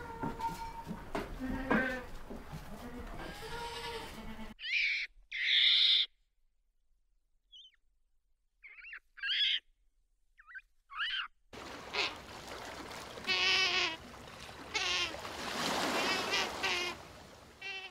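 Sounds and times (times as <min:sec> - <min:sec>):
outdoor background noise: 0:00.0 - 0:06.2, 0:08.6 - 0:17.9
short wavy bird calls: 0:10.4 - 0:12.4.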